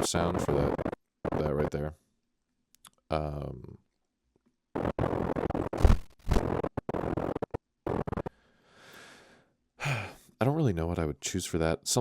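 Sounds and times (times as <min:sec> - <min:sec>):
scratchy sound effect previews: 0:00.0 - 0:01.8, 0:04.7 - 0:08.3.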